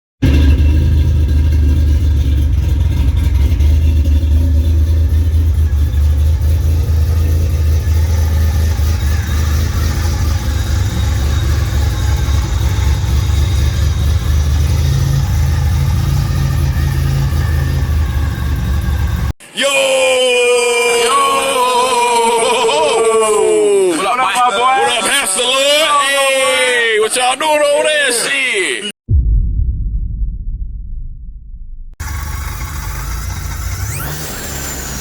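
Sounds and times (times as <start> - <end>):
car engine running: 0.2 - 19.4, 32.0 - 35.0.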